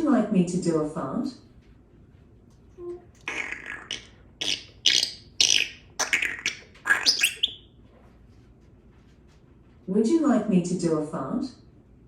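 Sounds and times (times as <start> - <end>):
parrot squawking and clicking: 3.2 - 7.7.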